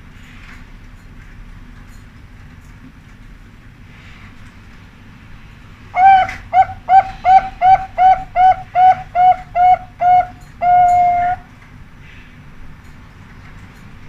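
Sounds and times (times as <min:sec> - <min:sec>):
dove cooing: 0:06.0 - 0:11.5.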